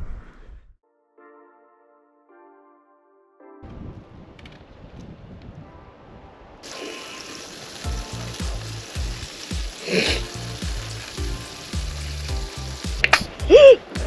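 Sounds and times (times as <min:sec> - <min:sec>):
food sizzling on a pan: 0:06.7 - 0:13.8
background music with bass beat: 0:07.8 - 0:14.0.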